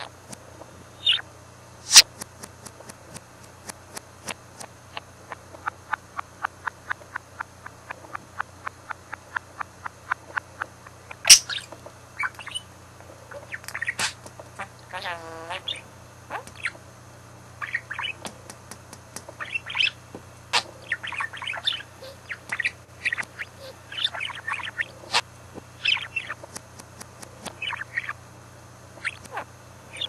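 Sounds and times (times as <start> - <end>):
budgerigar chattering: 1.0 - 1.2, 4.9 - 12.7, 13.3 - 16.8, 17.6 - 18.3, 19.3 - 26.5, 27.5 - 28.2, 29.0 - 30.0.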